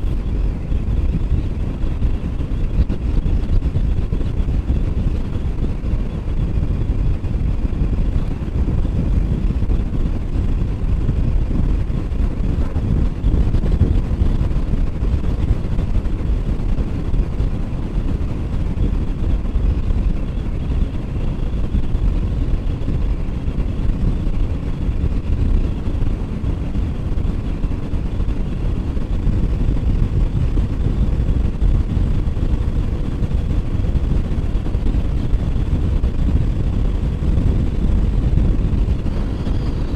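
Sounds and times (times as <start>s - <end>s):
wind rush and road noise: 0.0s - 39.9s.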